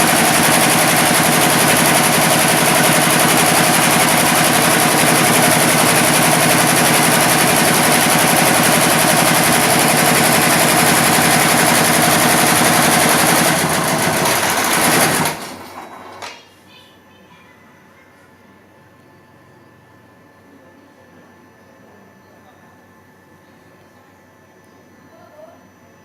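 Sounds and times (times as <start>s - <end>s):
embroidery machine rattling: 0.0s - 16.0s.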